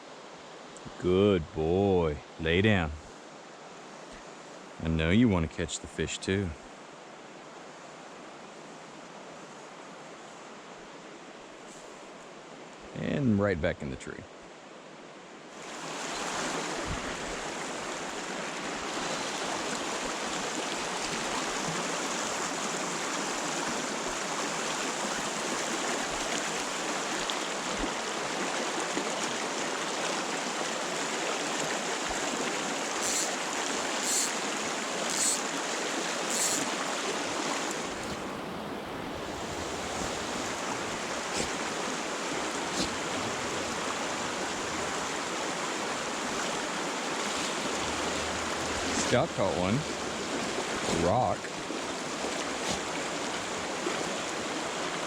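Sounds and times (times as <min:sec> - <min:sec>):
stream rushing over rocks: 0:15.4 - 0:55.0.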